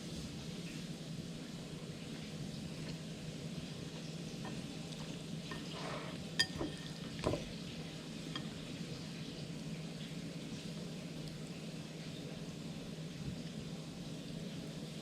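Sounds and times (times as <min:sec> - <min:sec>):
utensil clinking on kitchenware: 0:06.4 - 0:07.4.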